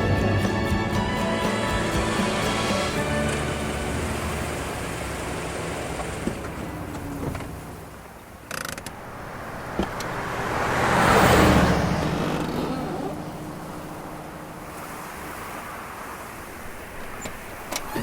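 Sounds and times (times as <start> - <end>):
car approaching: 0.0 - 18.0
low mechanical rumble: 1.0 - 10.5
small creaks and clicks: 8.4 - 9.0.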